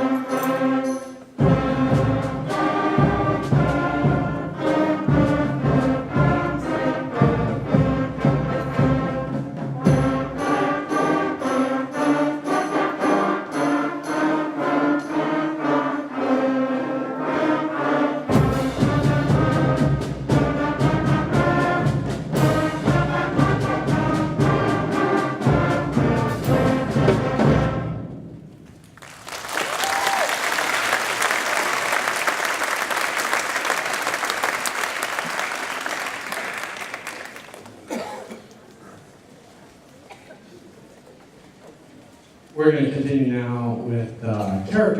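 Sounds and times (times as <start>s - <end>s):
concert band playing: 0.0s - 28.4s
audience applause: 29.0s - 37.9s.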